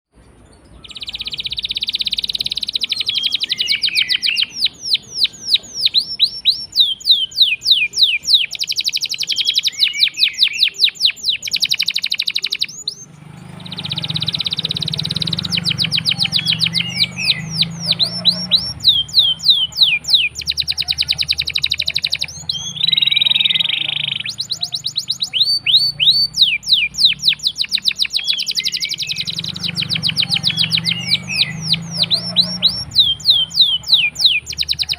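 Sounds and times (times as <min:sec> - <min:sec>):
canary singing trills: 0:00.1 - 0:34.9.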